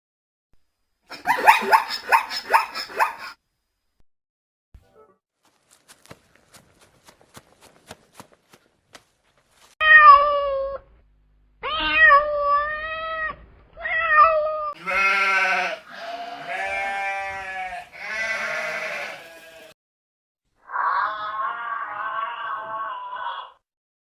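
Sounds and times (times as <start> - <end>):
long quavering animal calls: 1.1 - 3.4, 20.6 - 23.6.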